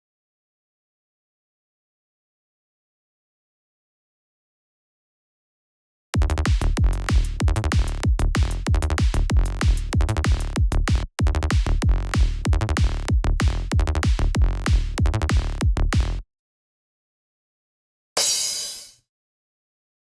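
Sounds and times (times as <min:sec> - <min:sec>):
electronic kick drum and bass groove: 0:06.2 - 0:16.2.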